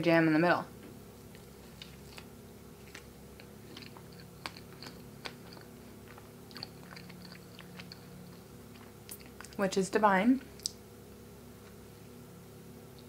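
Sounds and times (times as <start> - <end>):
person chewing doughnut: 1.2 - 9.6.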